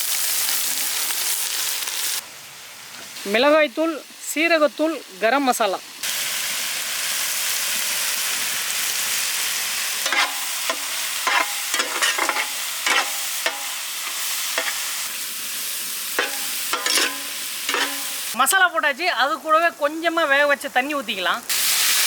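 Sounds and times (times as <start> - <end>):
chicken sizzling in hot oil: 0.0 - 18.4, 21.4 - 22.0
spoon scraping and knocking pan: 10.0 - 15.0, 16.2 - 18.4.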